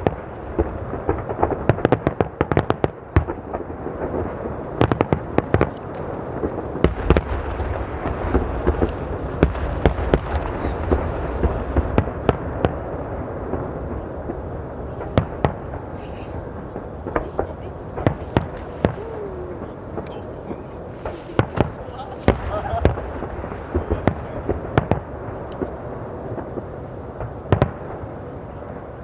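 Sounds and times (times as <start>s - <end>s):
booming rumble: 0.0s - 29.0s
fireworks bursting and crackling: 0.0s - 29.0s
sharp cracks: 16.7s - 20.4s.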